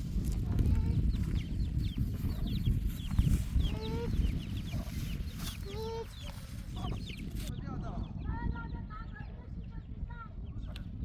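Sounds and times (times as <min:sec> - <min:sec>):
chickens clucking: 0:00.3 - 0:07.5
long drawn-out chicken calls: 0:03.3 - 0:06.4.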